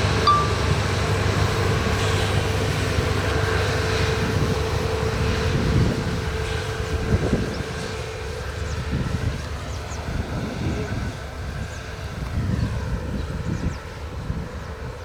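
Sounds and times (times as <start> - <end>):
train passing rumble: 0.0 - 12.2.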